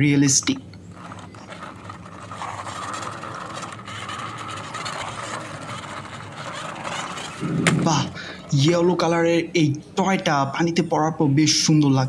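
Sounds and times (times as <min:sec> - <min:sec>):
toy wheels rolling on concrete: 0:00.4 - 0:09.3.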